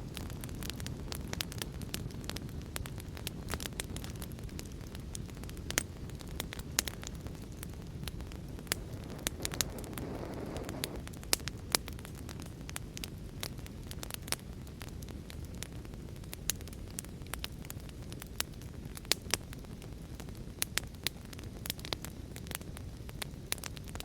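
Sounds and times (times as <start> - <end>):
wood fire crackling: 0.0 - 24.0
low rumble: 8.1 - 11.0.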